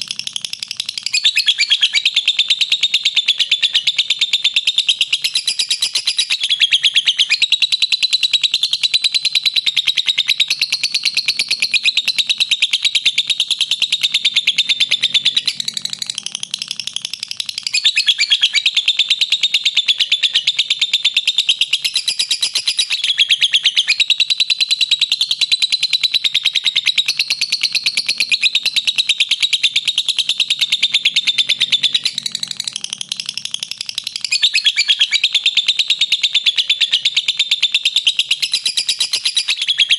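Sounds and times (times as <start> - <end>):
lovebird shrill chattering: 29.4 - 39.9.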